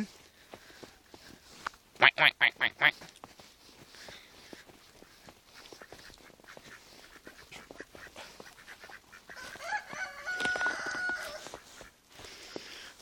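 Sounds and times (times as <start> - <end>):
rooster crowing: 9.3 - 11.6.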